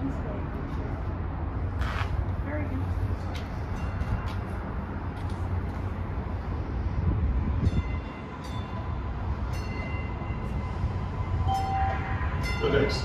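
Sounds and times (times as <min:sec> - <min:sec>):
train low rumble: 0:00.0 - 0:13.0
sharp high-pitched squeals: 0:10.5 - 0:13.0.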